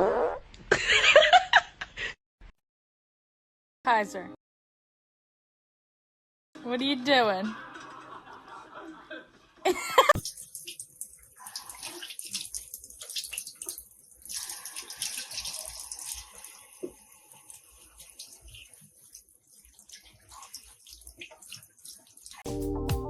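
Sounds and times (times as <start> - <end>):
water splashing: 10.0 - 22.5.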